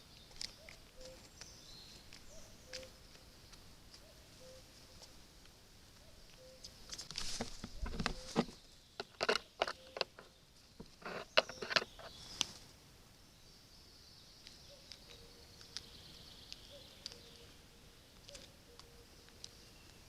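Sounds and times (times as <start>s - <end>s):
isolated ticks: 2.1s - 4.1s, 7.8s - 12.6s, 14.4s - 17.5s, 18.2s - 20.0s
sharp taps and rustles: 5.0s - 12.6s
faint high hiss: 10.4s - 20.0s.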